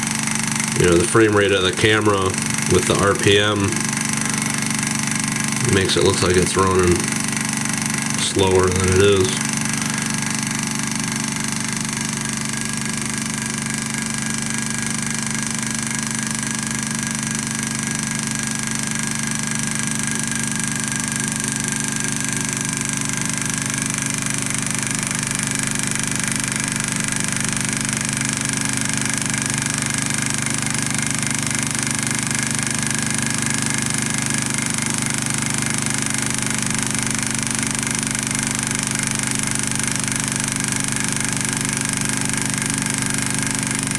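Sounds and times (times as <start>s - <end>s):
stirling engine running: 0.0s - 13.9s.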